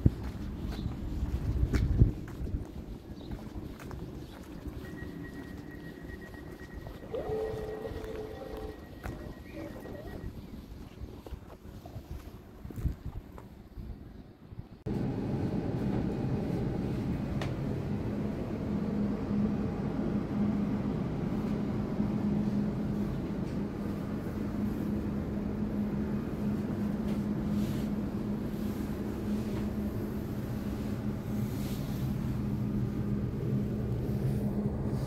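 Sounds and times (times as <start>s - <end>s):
train running rumble: 14.9s - 35.0s.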